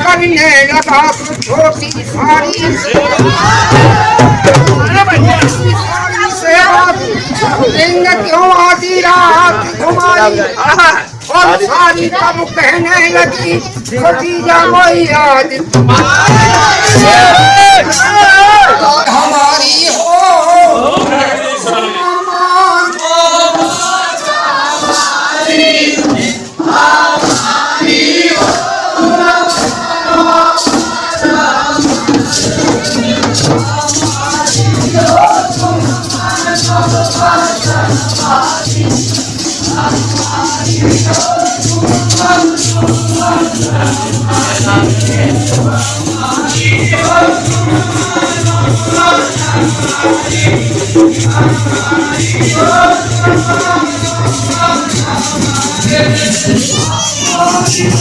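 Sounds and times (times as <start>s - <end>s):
cymbal-like percussion: 0.0s - 21.9s, 22.5s - 58.0s
rhythmic shaker: 0.0s - 58.0s
voices singing: 0.0s - 58.0s
pulsing low drum beat: 1.1s - 8.3s, 11.4s - 18.2s, 26.0s - 58.0s.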